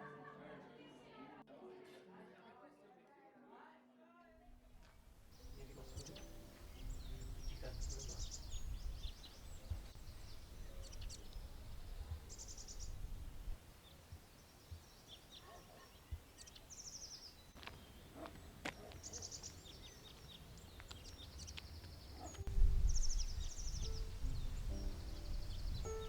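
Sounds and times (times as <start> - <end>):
songbirds trilling: 5.4 - 26.0.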